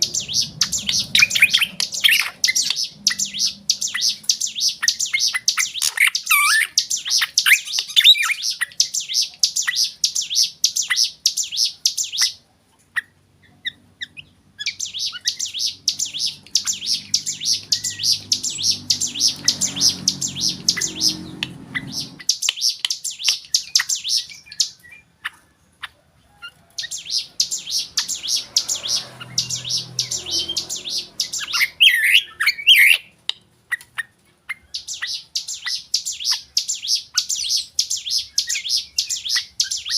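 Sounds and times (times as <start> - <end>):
low sweeping bird notes: 0.0 - 5.4, 26.9 - 33.0
bird chattering song: 0.0 - 39.9.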